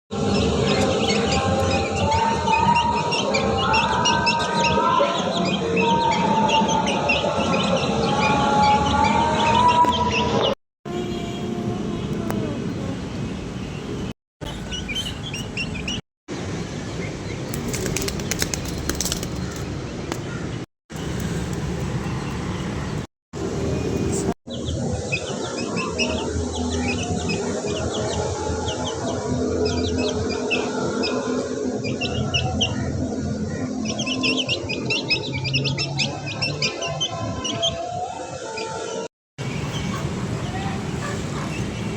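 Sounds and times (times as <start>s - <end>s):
small birds chirping: 12.2s - 16.0s, 16.9s - 23.1s, 31.8s - 37.8s, 38.6s - 41.9s
sharp clicks and rustles: 17.5s - 20.3s, 20.9s - 23.1s.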